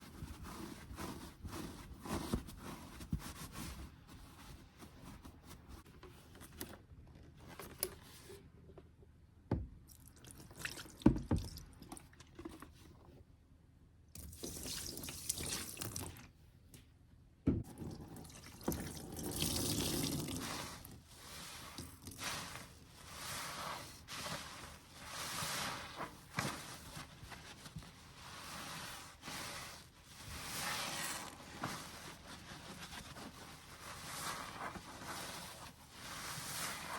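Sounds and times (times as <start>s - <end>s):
wet sponge squelching: 18.1s - 36.9s.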